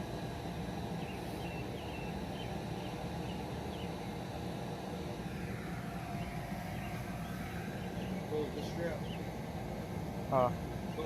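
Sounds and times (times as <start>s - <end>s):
electric blower running: 0.0s - 11.0s.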